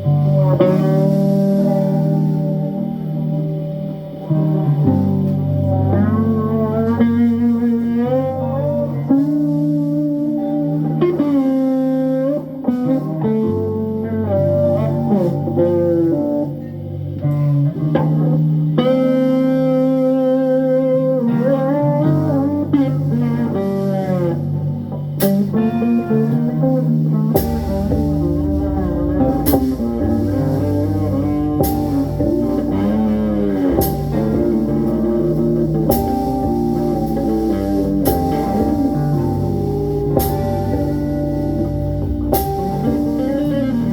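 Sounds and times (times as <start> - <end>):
bass line: 0.0 - 43.9
lead guitar with bending notes: 0.0 - 43.9
drum and cymbal hits: 27.4 - 43.9.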